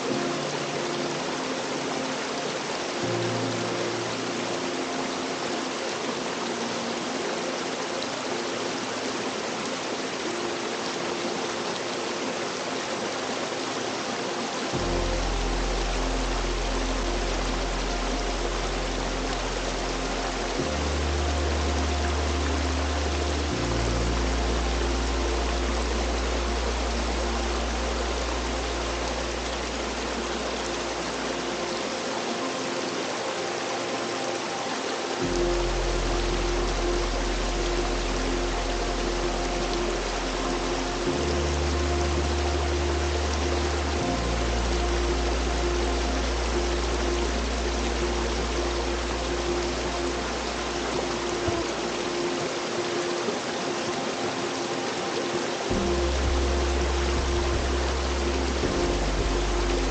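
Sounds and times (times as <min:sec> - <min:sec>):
soft held music notes: 0:00.0 - 0:59.9
waterfall rushing and splashing: 0:00.0 - 0:59.9
low bass note: 0:14.7 - 0:31.4, 0:35.2 - 0:52.3, 0:55.7 - 0:59.9.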